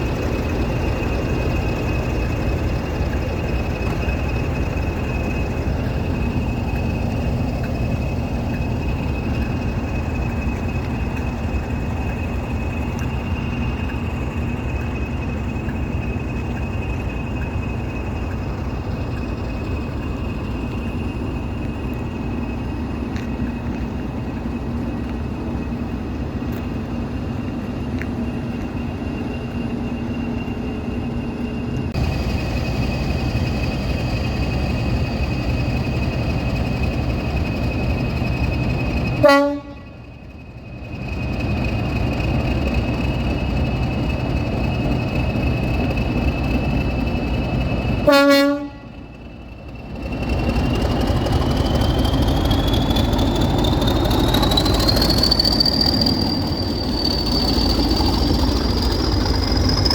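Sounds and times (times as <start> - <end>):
diesel locomotive engine rumble: 0.0 - 59.9
high whistle: 50.8 - 59.9.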